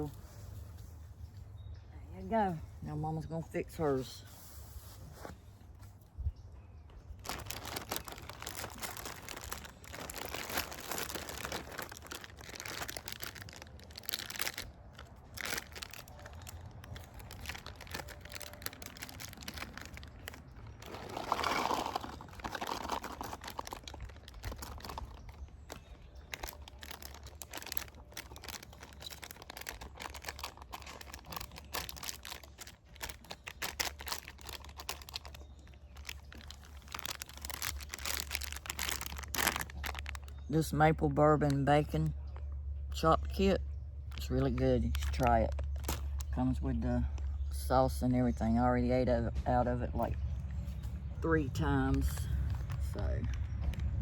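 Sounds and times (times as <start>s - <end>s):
plastic packaging crinkling: 7.1s - 40.5s, 44.1s - 46.4s, 52.4s - 54.0s.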